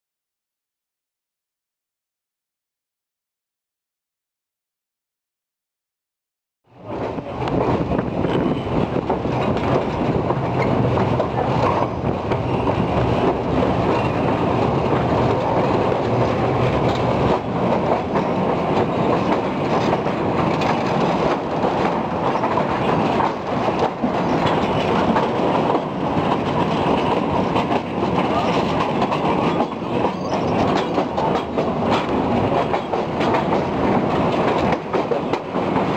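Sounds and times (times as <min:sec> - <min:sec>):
train rumbling over bridge: 0:06.7 - 0:35.9
wheels clattering on rails: 0:06.8 - 0:35.9.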